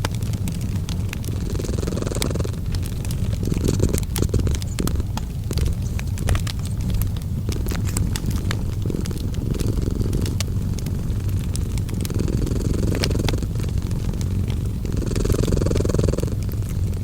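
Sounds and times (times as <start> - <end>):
cat purring: 0.0 - 17.0
wood fire crackling: 0.0 - 17.0.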